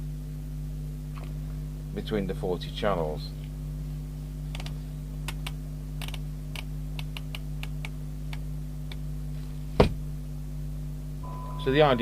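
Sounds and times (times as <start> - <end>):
steady hum: 0.0 - 12.0
small irregular clicks: 4.5 - 9.0.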